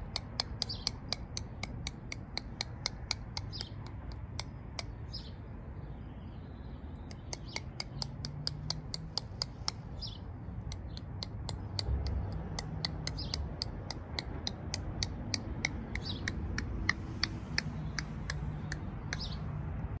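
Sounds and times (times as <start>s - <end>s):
small bird chirping: 0.0s - 19.6s
low steady rumble: 5.4s - 20.0s.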